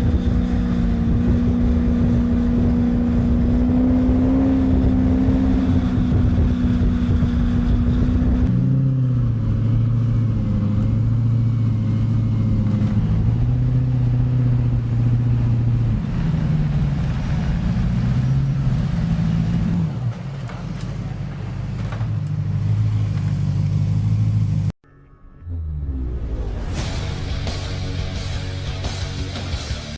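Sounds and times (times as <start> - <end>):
motorcycle engine running loudly: 0.0 - 19.8, 26.2 - 29.9.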